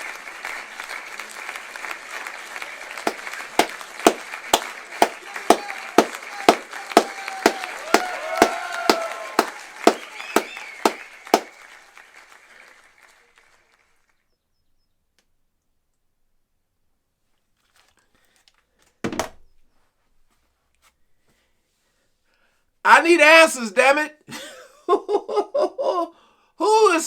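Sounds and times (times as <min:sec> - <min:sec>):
audience applause and cheering: 0:00.0 - 0:13.7
sharp even clapping: 0:02.2 - 0:11.8
whoops from crowd: 0:05.6 - 0:11.5.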